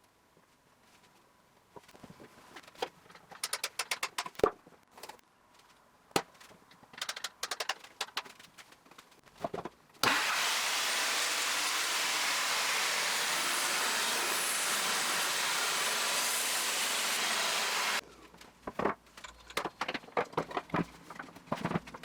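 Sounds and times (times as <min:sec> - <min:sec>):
loud steady rushing noise: 0:10.2 - 0:18.0.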